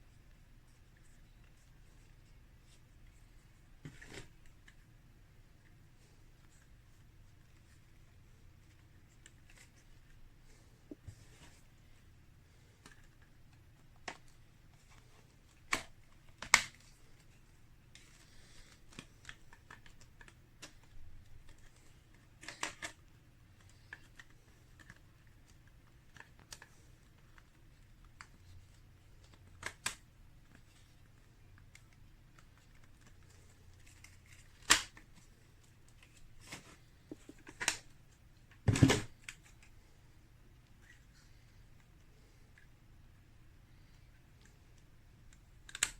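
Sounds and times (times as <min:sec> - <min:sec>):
clicks and knocks of objects handled: 0:12.8 - 0:39.8, 0:43.8 - 0:45.9.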